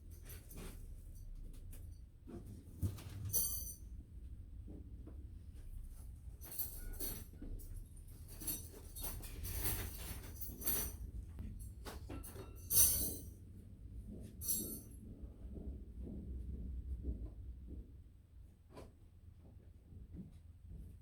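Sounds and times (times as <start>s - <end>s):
metal tools clinking and scraping: 3.0s - 3.8s, 6.4s - 13.4s, 14.4s - 14.9s.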